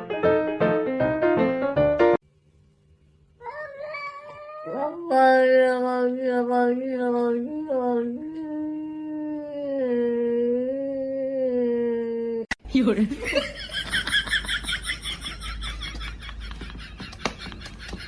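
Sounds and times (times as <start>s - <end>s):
cat yowling: 3.4s - 5.4s.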